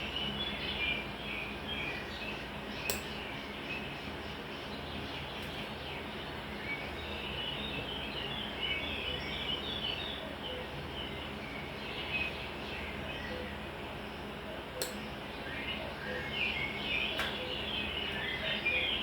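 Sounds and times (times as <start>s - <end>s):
birds chirping: 0.0s - 19.0s
steady low hum: 0.0s - 19.0s.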